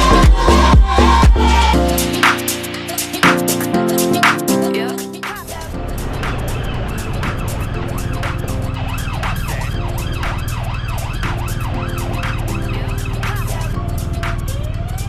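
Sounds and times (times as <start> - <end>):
music with steady beat: 0.0 - 14.6
siren-like wail: 6.5 - 15.0.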